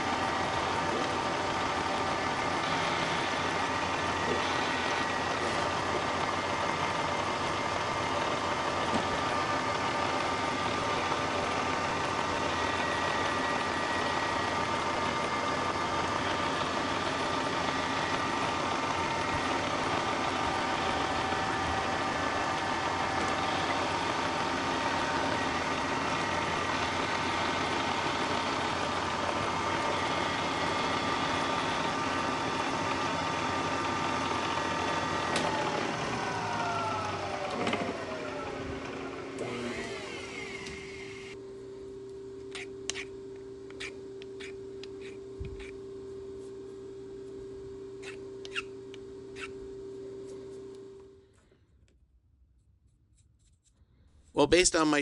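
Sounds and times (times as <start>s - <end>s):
milling machine running: 0.0s - 41.4s.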